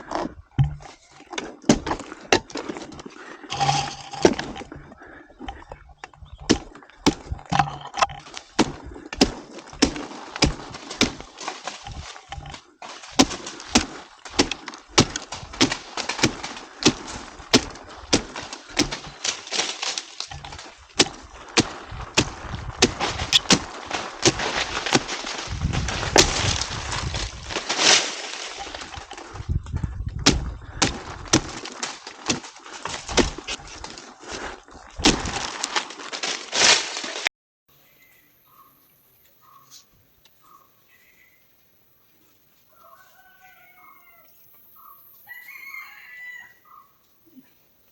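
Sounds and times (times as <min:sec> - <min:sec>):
chopping blows into wood: 0:00.6 - 0:01.0, 0:06.4 - 0:19.7, 0:20.3 - 0:26.8, 0:30.2 - 0:34.0.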